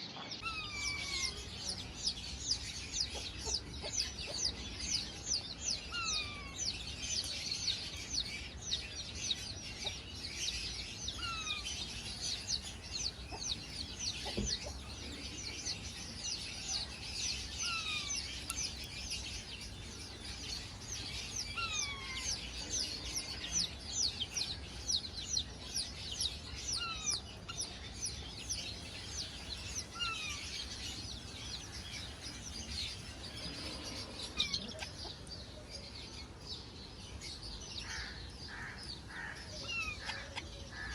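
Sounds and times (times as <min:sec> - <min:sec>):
parrots chirping: 0:20.6 - 0:22.5, 0:28.6 - 0:35.0.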